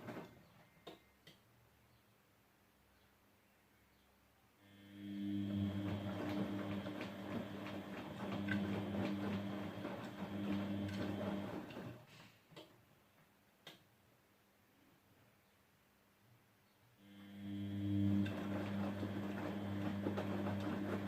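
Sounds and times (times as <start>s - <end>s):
washing machine humming and ticking: 4.8s - 12.0s, 17.2s - 21.0s.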